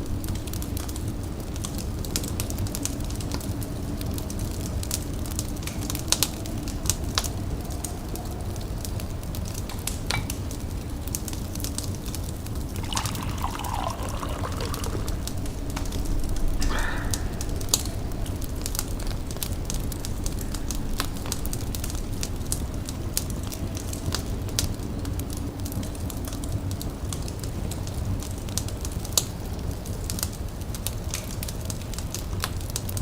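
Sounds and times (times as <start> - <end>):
wood fire crackling and popping: 0.0 - 33.0
tea pouring into a cup: 12.5 - 22.8.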